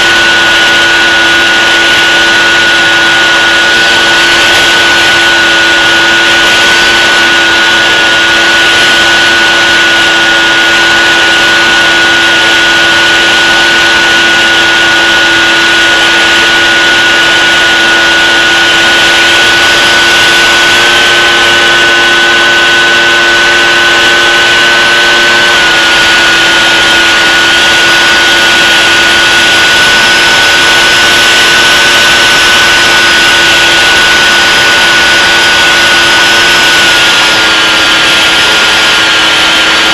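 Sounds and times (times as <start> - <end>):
aircraft engine whine in flight: 0.0 - 39.9.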